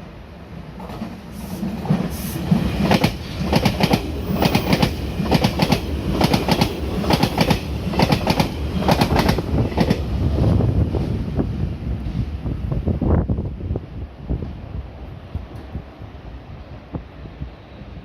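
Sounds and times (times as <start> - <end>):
train rumble: 0.0 - 18.0
train wheels clicking over rails: 0.8 - 10.2.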